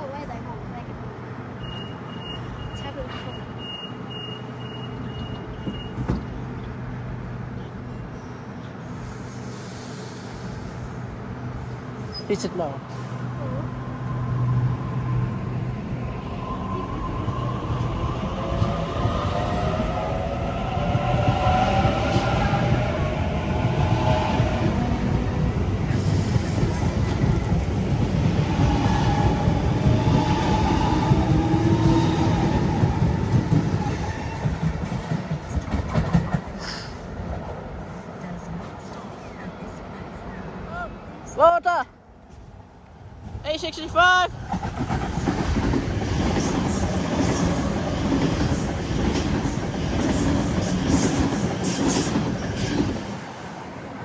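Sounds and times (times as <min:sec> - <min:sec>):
train rumbling along rails: 0:00.0 - 0:41.4, 0:42.0 - 0:54.0
wheels clickety-clack: 0:32.6 - 0:36.6, 0:44.5 - 0:53.0.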